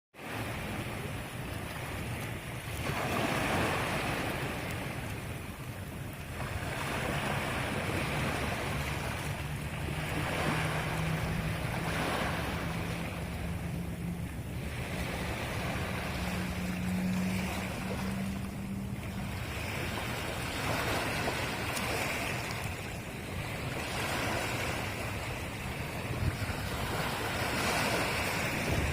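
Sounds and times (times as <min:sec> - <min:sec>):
sea waves washing onto shore: 0:00.2 - 0:28.9
low steady hum: 0:07.5 - 0:23.9.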